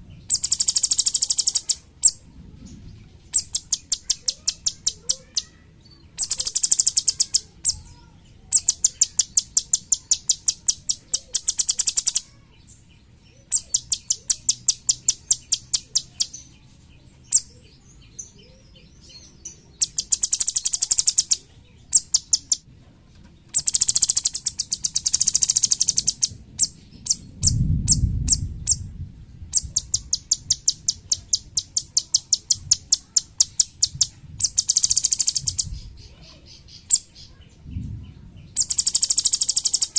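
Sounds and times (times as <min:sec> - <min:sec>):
bird singing fast trills: 0:00.0 - 0:22.6, 0:23.5 - 0:39.9
low rumble: 0:26.3 - 0:30.2, 0:37.5 - 0:38.6.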